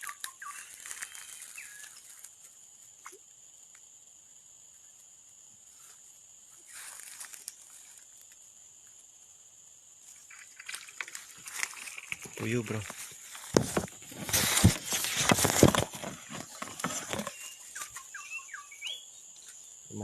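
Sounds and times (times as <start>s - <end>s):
insects droning: 0.0s - 20.0s
brief rustle: 10.3s - 18.0s.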